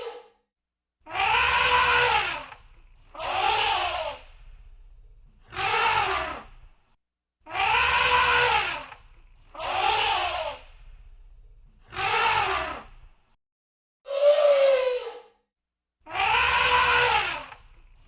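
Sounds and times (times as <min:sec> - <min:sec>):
elephant trumpeting: 0:01.1 - 0:04.2, 0:05.5 - 0:06.5, 0:07.5 - 0:10.6, 0:11.9 - 0:12.9, 0:16.1 - 0:17.6.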